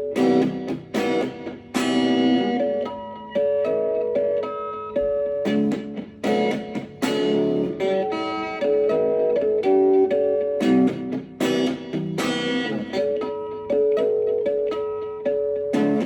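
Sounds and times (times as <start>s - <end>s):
guitar plucked and strummed: 0.0s - 16.0s.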